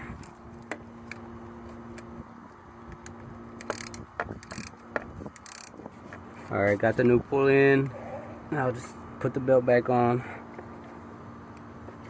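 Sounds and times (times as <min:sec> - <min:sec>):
ratchet wrench clicking: 0:03.6 - 0:05.8.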